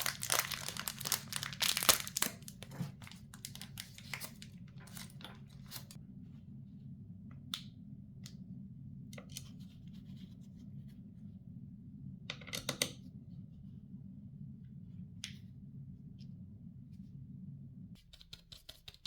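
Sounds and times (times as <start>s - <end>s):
packaging rustling: 0.0s - 6.0s
steady low hum: 0.0s - 18.3s.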